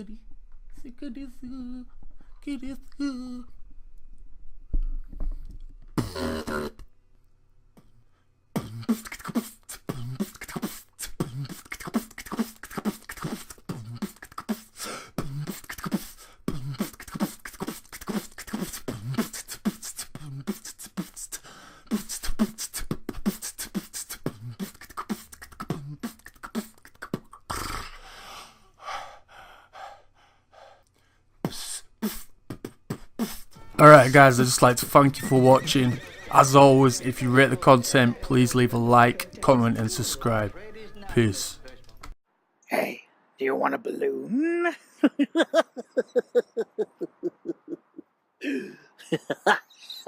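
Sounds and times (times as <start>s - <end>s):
beatboxing: 6.0s - 6.8s, 8.6s - 28.0s, 31.4s - 42.2s.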